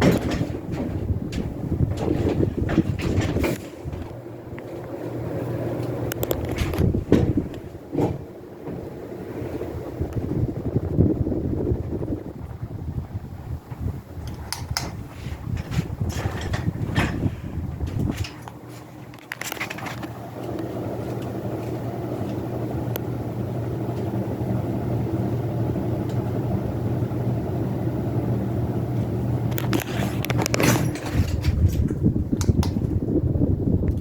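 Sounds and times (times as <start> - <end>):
ceiling fan motor hum: 0.0 - 34.0
fan clicks and rattles: 0.0 - 34.0
rush of moving air: 4.9 - 18.7.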